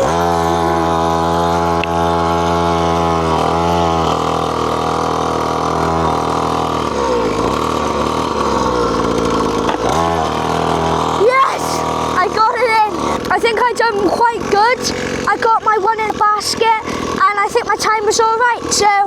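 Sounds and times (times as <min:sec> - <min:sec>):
mini dirt bike engine running: 0:00.0 - 0:19.0.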